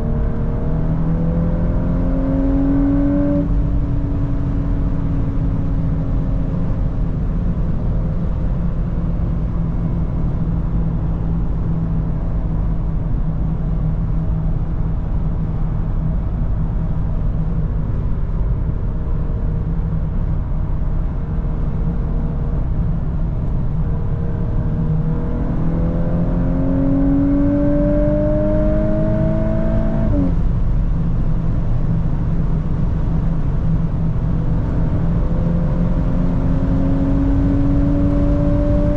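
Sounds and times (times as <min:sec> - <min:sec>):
engine accelerating and upshifting: 0:00.0 - 0:10.3, 0:21.1 - 0:30.7, 0:32.8 - 0:38.9
car engine and road drone: 0:00.0 - 0:38.9.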